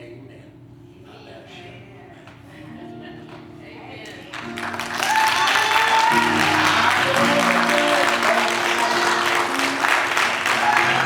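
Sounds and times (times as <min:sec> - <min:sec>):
instrumental music: 0:02.7 - 0:11.0
congregation applauding: 0:03.2 - 0:11.0.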